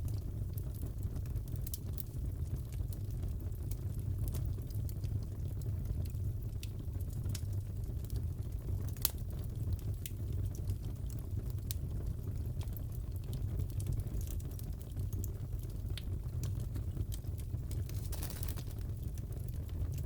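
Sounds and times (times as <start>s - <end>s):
burning logs rumbling: 0.0s - 20.0s
fire popping and snapping: 0.0s - 20.0s.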